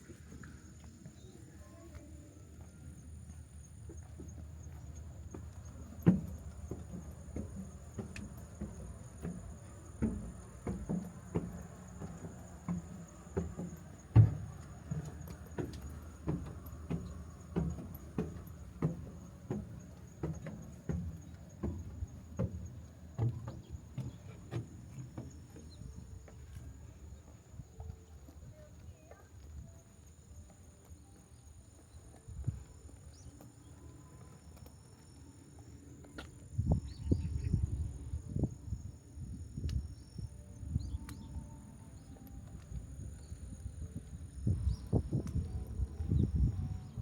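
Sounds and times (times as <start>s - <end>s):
footsteps walking: 0.0s - 37.0s, 41.2s - 44.2s.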